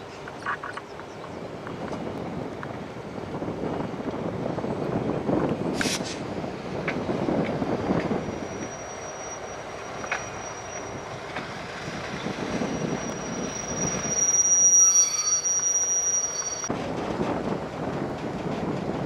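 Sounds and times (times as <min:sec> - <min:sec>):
train rumbling: 0:00.0 - 0:19.0
train wheels squealing on rails: 0:07.5 - 0:16.7.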